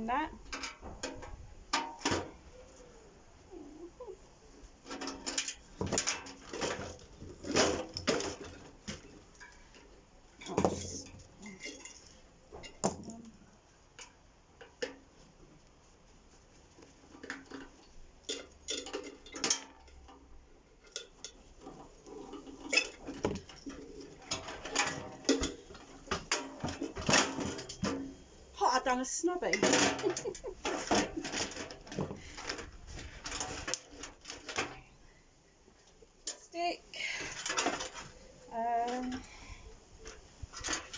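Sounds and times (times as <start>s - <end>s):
metal and plastic parts clattering: 4.8s - 13.2s, 17.2s - 28.2s, 29.5s - 34.9s, 37.1s - 38.2s, 40.0s - 40.9s.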